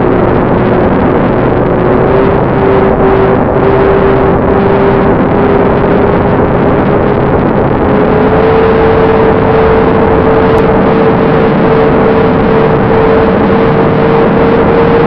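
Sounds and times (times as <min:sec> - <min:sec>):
electric motor propeller whine: 0:00.0 - 0:15.0
rushing air noise: 0:00.0 - 0:15.0.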